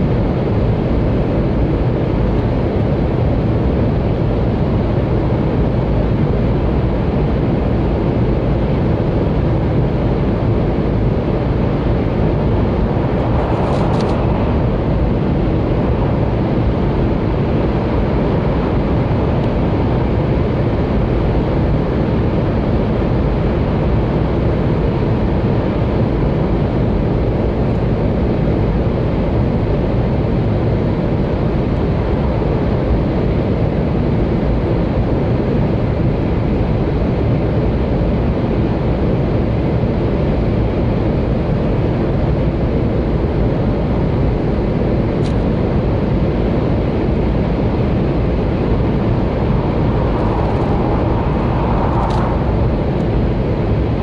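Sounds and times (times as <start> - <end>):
train wheels and air rumbling: 10.4 - 20.8, 46.3 - 54.0.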